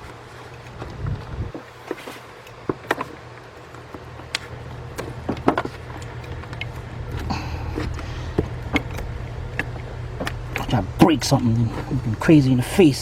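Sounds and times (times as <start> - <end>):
steady low hum: 0.0 - 13.0
clicks and knocks of parts handled: 0.4 - 10.8.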